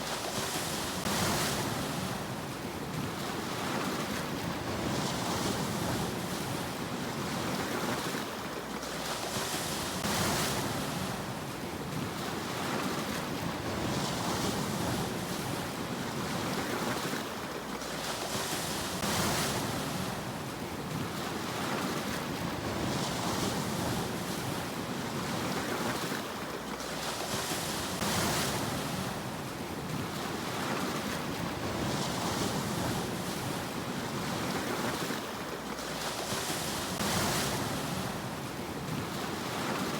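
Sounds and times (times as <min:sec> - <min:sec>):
steady rumble of surf: 0:00.0 - 0:39.9
waves breaking on shore: 0:00.0 - 0:39.9.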